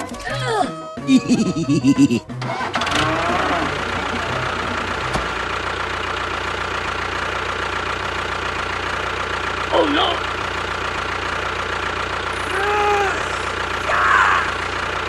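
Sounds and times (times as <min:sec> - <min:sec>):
tractor engine idling: 0:01.1 - 0:15.0.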